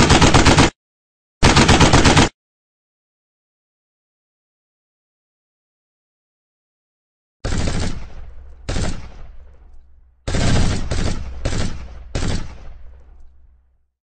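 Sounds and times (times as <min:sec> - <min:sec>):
gunshots echoing: 0:07.4 - 0:13.6.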